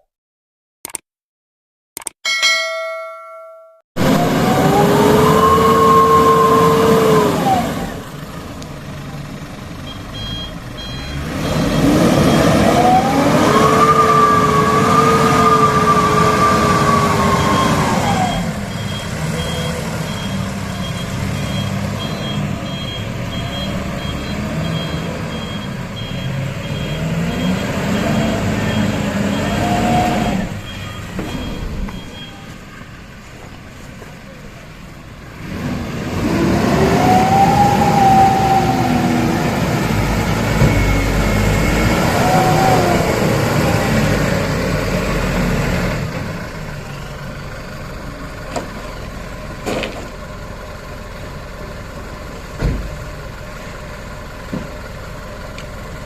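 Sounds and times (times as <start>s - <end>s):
diesel truck engine revving: 4.0s - 56.0s
reversing beeper beeps: 9.8s - 13.8s, 15.7s - 32.8s, 39.9s - 42.9s.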